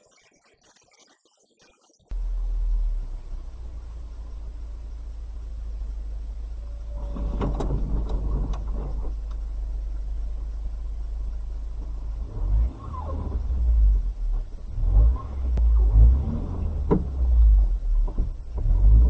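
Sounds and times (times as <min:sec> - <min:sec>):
car driving rumble: 0:02.1 - 0:19.0
sharp clicks and knocks: 0:07.0 - 0:09.5.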